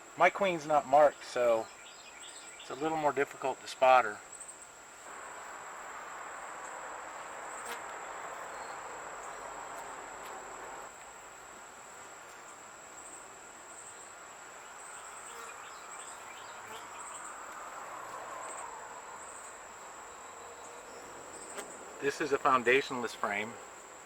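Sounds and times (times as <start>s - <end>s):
high insect trill: 0.0s - 24.0s
honeybees humming: 5.0s - 24.0s.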